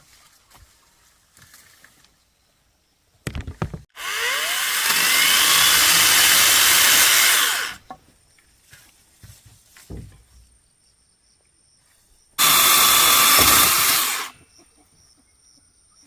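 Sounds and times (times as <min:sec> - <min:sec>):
power tool running: 0:04.0 - 0:07.8, 0:12.4 - 0:14.4.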